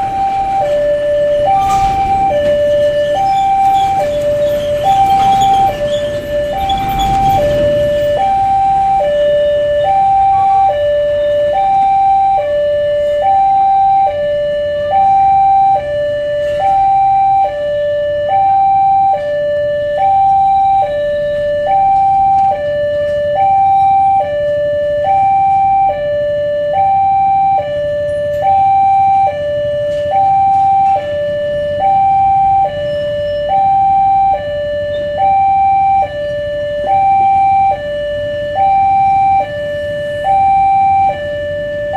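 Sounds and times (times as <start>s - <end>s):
low engine rumble: 0.0s - 10.5s
two-tone siren: 0.0s - 41.9s.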